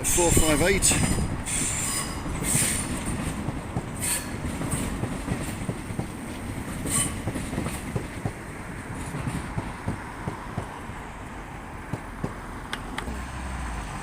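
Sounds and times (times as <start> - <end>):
rumble of train wheels on rails: 0.0 - 13.2
high-pitched wheel squeals: 0.9 - 2.9, 4.0 - 4.4, 6.9 - 7.2.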